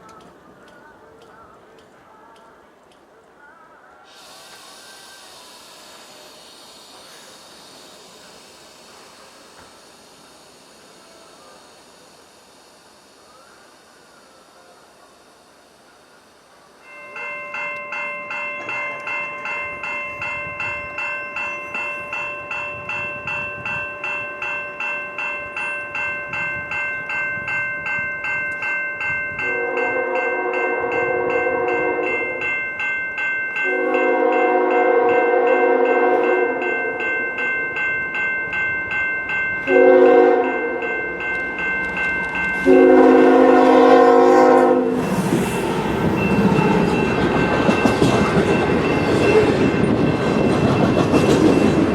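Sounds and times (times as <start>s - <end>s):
train passing: 0.0s - 51.9s
crossing bell ringing: 4.2s - 51.9s
train horn blasts: 29.4s - 32.4s, 33.6s - 36.7s, 39.7s - 40.8s, 42.6s - 46.9s.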